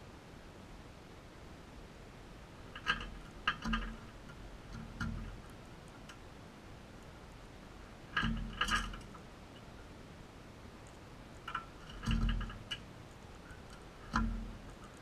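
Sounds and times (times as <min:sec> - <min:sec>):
sharp clicks and light knocks: 0:02.6 - 0:06.2, 0:07.0 - 0:09.8, 0:10.8 - 0:15.0.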